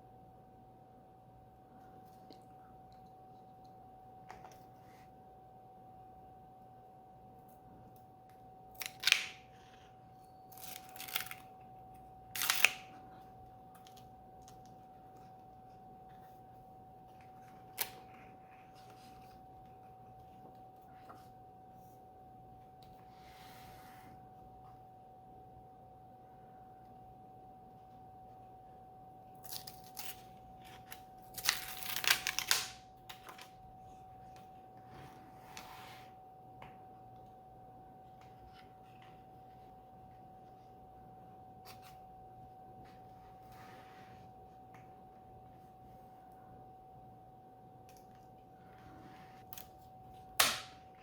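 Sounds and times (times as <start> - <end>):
book handling clicks: 50.4 - 50.8.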